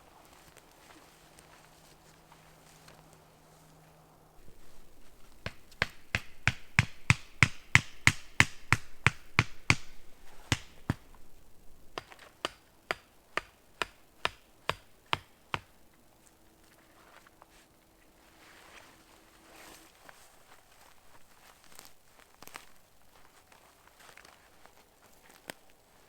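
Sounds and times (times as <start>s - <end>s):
tool knocking on wood: 5.4s - 11.1s, 12.0s - 15.7s.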